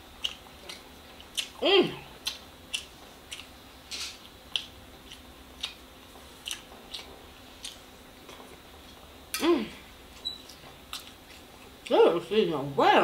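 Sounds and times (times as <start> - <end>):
wet chewing and lip smacks: 0.2 - 1.6, 2.2 - 5.8, 6.4 - 9.0, 10.2 - 11.9
person humming mmm: 9.4 - 9.8.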